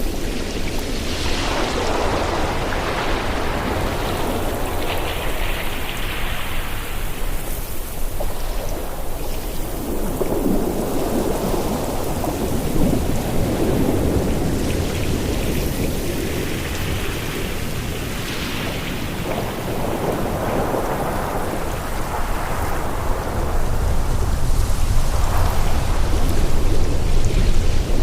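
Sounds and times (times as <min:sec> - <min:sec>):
deep rumble of surf: 0:00.0 - 0:28.0.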